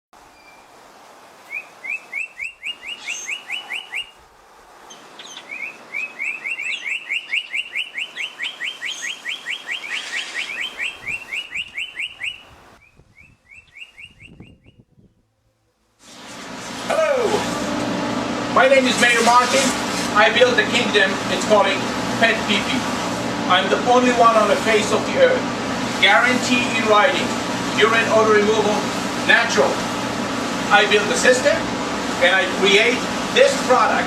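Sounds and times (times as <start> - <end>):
bird chirping: 1.5 - 4.2, 4.9 - 15.2.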